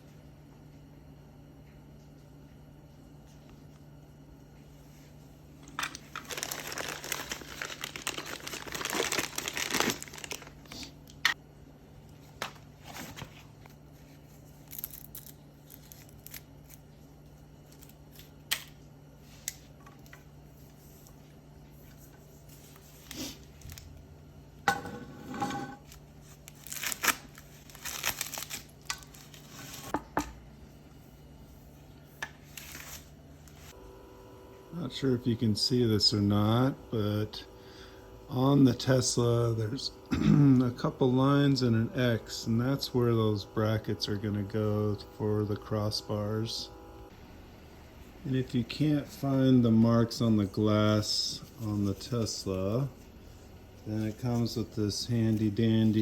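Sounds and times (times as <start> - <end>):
packaging crinkling and tearing: 5.9 - 11.0, 14.5 - 16.9, 25.8 - 29.9.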